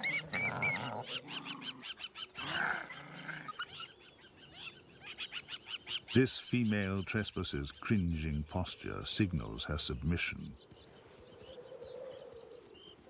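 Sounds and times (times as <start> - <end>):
jackal snarling cry: 0.0 - 3.8
jackals yelping and whining: 0.0 - 6.2.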